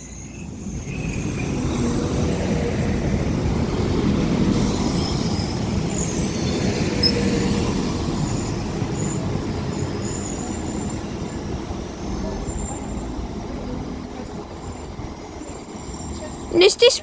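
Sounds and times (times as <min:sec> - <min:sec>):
high squeals from wheels and brakes: 0:00.0 - 0:17.0
train engines and wheels rumbling: 0:00.0 - 0:17.0.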